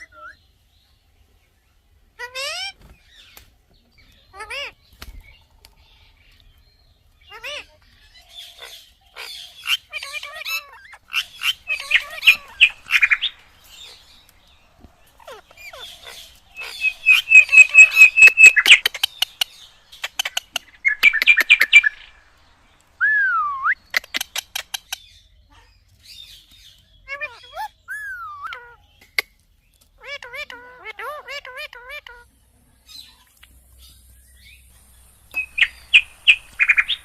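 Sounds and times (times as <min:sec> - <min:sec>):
parakeet chirping: 0:07.2 - 0:22.8, 0:23.6 - 0:25.2, 0:27.0 - 0:29.0, 0:30.0 - 0:32.3, 0:32.9 - 0:37.0
parakeet whistle: 0:15.7 - 0:19.1.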